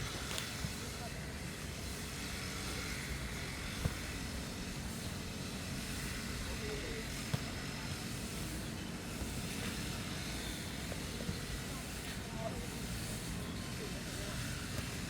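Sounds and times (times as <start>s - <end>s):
grass cutter droning: 0.0s - 15.0s.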